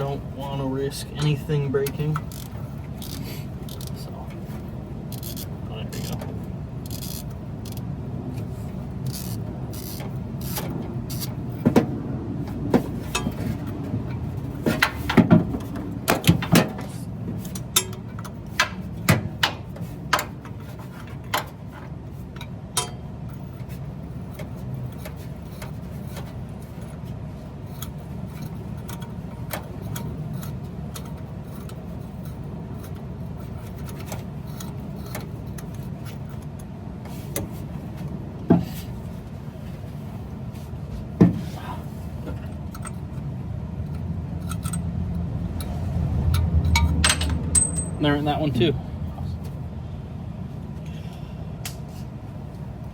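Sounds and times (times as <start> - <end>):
hand tools clinking on metal: 46.6 - 48.6.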